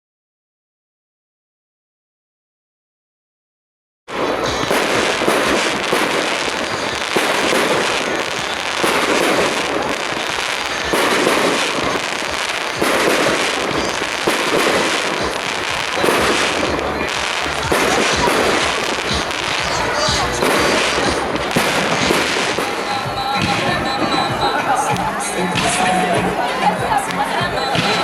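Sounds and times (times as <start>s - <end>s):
fireworks bangs and crackling: 4.1s - 28.0s.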